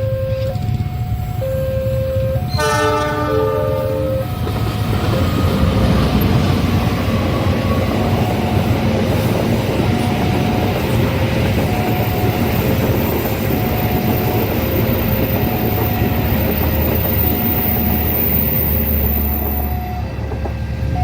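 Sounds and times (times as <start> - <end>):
level-crossing alarm: 0.0 - 21.0
train wheels rumbling on rails: 0.2 - 21.0
locomotive horn blast: 1.3 - 4.4.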